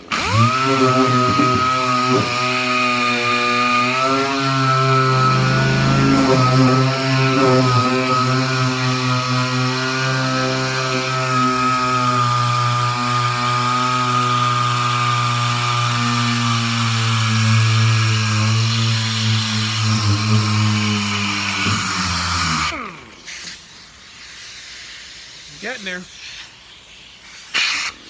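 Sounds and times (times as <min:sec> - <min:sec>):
pneumatic tool buzzing drone: 0:00.0 - 0:08.2.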